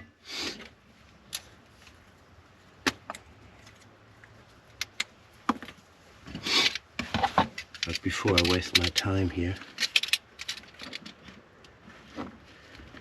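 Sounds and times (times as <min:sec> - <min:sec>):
faint handling noise: 0:01.0 - 0:13.0
caulking gun clicks and knocks: 0:07.3 - 0:09.1.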